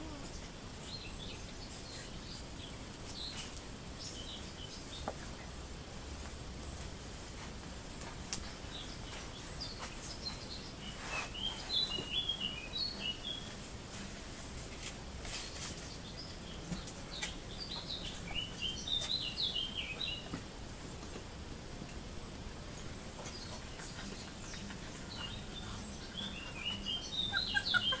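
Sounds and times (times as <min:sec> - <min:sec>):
steady low background noise: 0:00.0 - 0:28.0.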